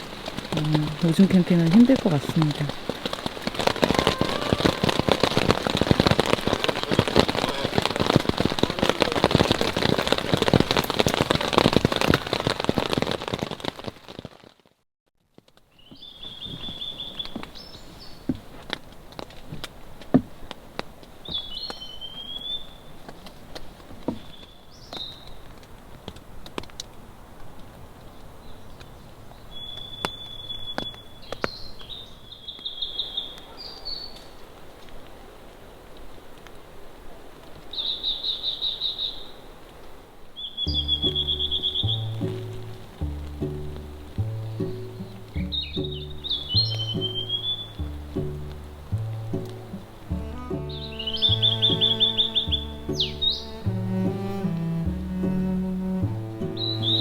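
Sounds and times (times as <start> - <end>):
songbird singing: 0.0 - 10.2, 15.7 - 18.8, 21.2 - 23.4, 24.0 - 25.5, 28.0 - 34.4, 37.7 - 39.4, 40.4 - 57.0
rain pattering on a tent: 0.0 - 57.0.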